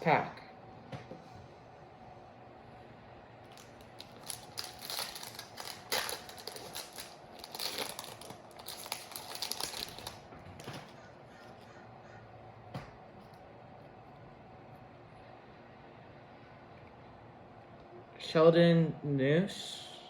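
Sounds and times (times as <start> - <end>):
wrapper tearing and crinkling: 3.5 - 10.8.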